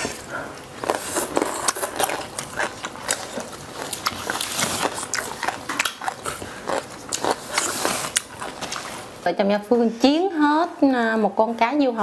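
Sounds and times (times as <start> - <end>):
chewing crispy fried fish: 0.5 - 9.1.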